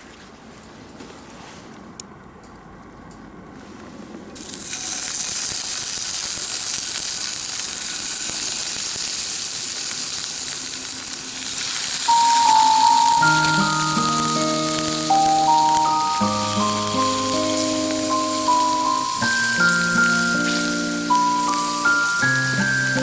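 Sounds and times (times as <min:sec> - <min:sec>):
food sizzling in a pan: 0:04.4 - 0:23.0
sustained musical tone: 0:12.1 - 0:23.0.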